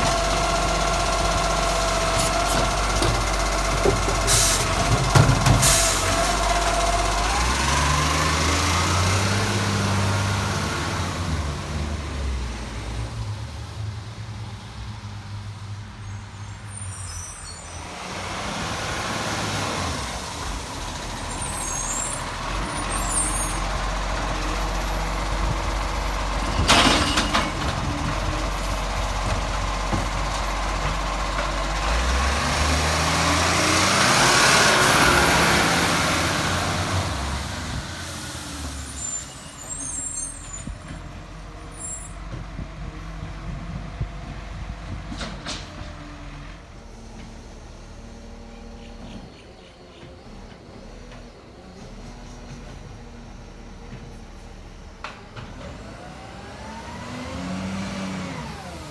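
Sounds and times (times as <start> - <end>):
garbage truck diesel engine: 0.0 - 58.9
air brake hisses: 4.2 - 4.8, 5.6 - 6.3.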